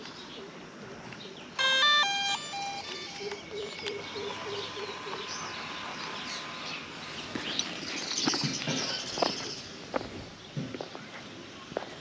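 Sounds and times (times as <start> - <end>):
faint steady whine: 0.5 - 8.0
birds chirping and calling: 1.2 - 11.2
short low beeps: 1.6 - 5.6.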